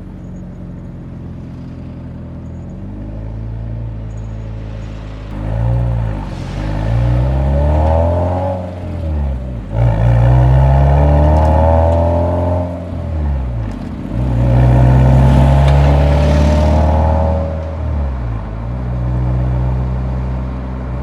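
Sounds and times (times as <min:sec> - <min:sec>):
car exhaust revving: 0:05.3 - 0:19.8.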